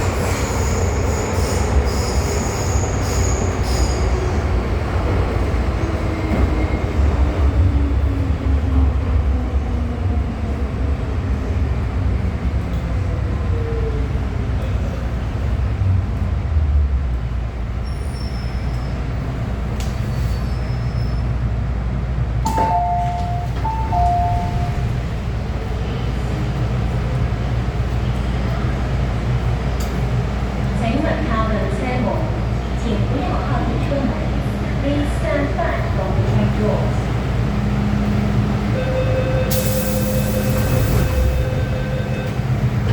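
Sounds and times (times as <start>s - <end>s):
train rumble and motor whine: 0.0s - 42.9s
click: 19.8s - 20.0s.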